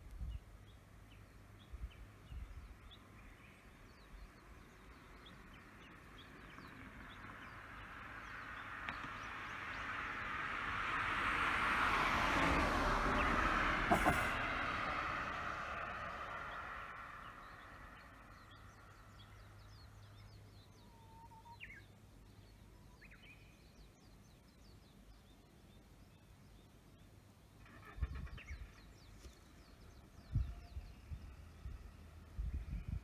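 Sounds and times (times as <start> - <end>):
vehicle passing: 9.3 - 19.6.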